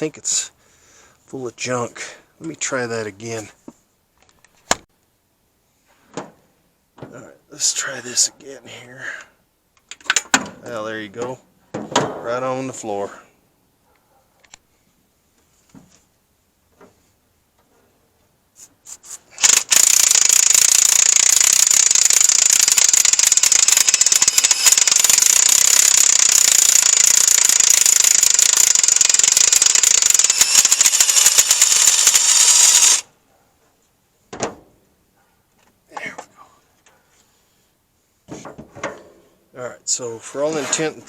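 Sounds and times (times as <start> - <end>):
air blowgun hissing: 19.4 - 33.0.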